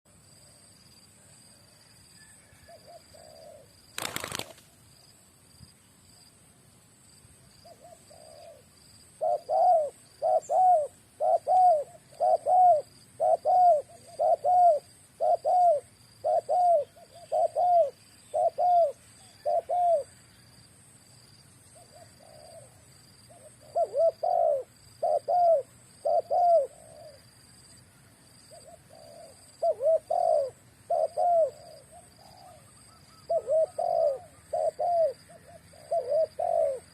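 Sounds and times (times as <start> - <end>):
dove cooing: 2.4 - 4.6, 7.6 - 20.1, 21.8 - 27.2, 28.5 - 36.9.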